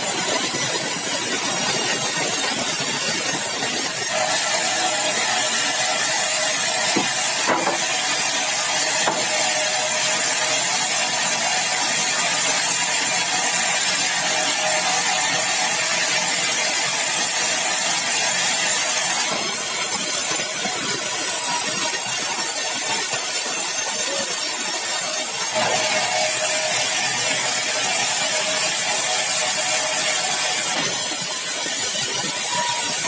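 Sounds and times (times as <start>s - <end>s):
saw cutting through log: 0.0s - 33.0s
knocks: 7.0s - 7.9s.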